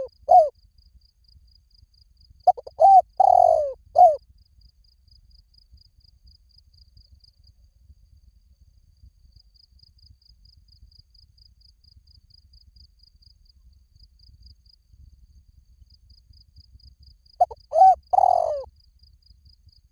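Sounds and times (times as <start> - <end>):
dove cooing: 0.0 - 0.5, 2.5 - 4.2, 17.4 - 18.7.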